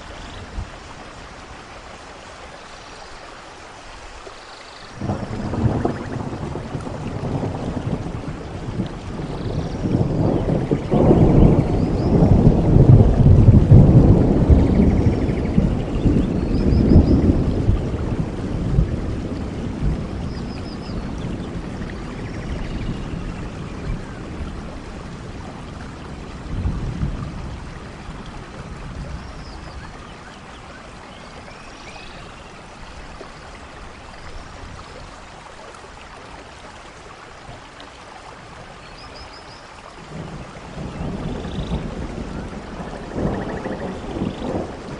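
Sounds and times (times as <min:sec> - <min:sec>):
rain: 0:00.0 - 0:44.9
rolling thunder rumble: 0:05.0 - 0:30.5, 0:40.0 - 0:44.9.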